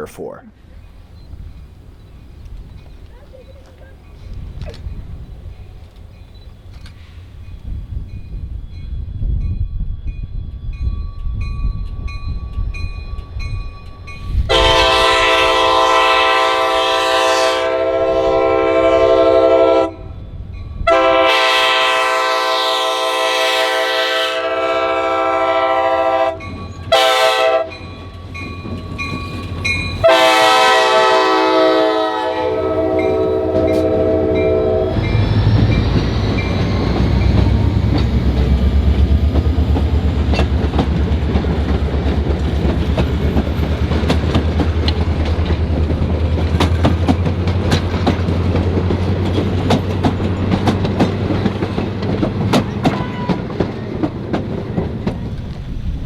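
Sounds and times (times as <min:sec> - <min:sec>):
locomotive air horn blasts: 0:14.4 - 0:20.1, 0:20.8 - 0:27.8, 0:30.0 - 0:35.2, 0:52.9 - 0:53.5
locomotive engine rumble: 0:20.1 - 0:56.0
wheels clicking over rail joints: 0:35.1 - 0:56.0.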